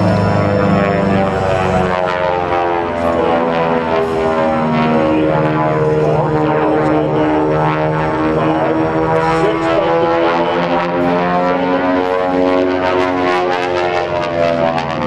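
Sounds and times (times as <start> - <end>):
propeller plane engines droning: 0.0 - 15.0.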